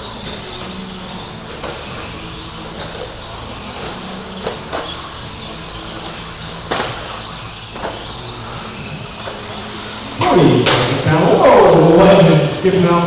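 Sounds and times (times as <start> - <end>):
rc truck motors whining: 0.0 - 13.0.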